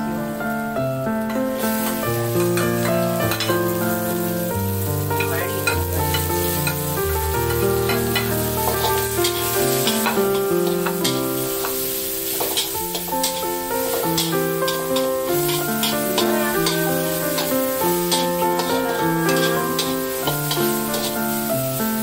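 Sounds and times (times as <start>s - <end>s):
garlic sizzling in hot oil: 0.0s - 22.0s
piano background music: 0.0s - 22.0s
metal spatula scraping a wok: 5.2s - 21.4s.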